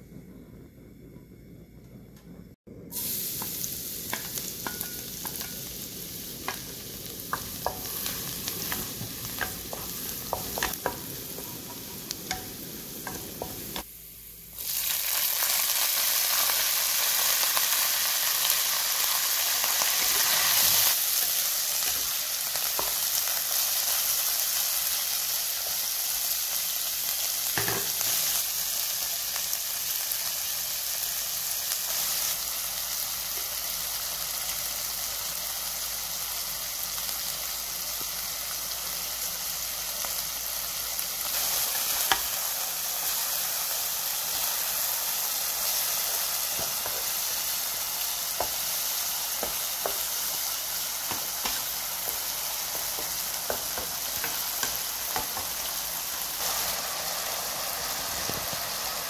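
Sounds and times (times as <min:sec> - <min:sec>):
loud hissing sizzle: 0:00.0 - 0:59.0
garlic sizzling in oil: 0:02.9 - 0:59.0
wooden spatula stir-frying: 0:03.0 - 0:13.9, 0:15.2 - 0:29.4, 0:40.8 - 0:59.0.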